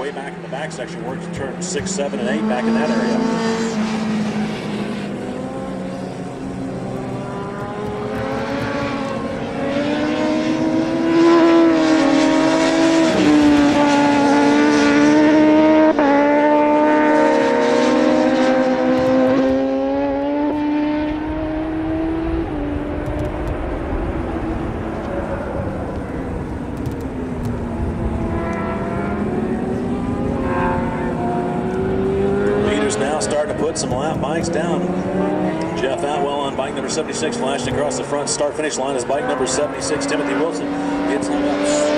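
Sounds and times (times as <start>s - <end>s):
racing motorcycles at high revs: 0.0s - 41.9s.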